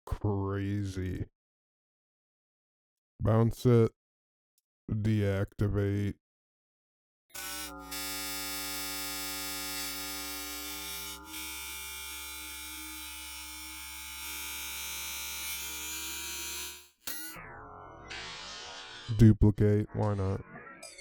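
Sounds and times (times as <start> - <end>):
synthetic drone of held tones: 7.4 - 14.4.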